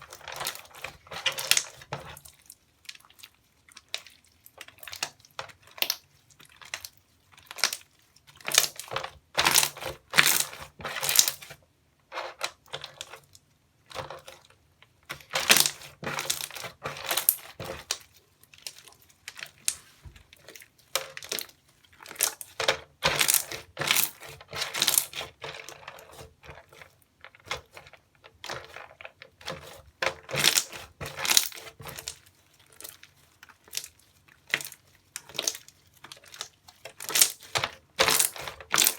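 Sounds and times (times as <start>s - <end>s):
slime squeezed and crackling: 0.0s - 11.5s, 15.1s - 25.8s, 30.3s - 38.9s.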